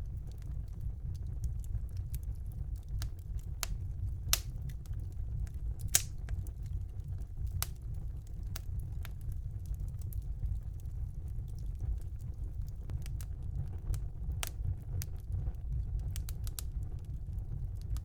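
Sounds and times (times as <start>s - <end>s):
low rumble of fire: 0.0s - 18.0s
wood fire crackling and popping: 0.0s - 18.0s.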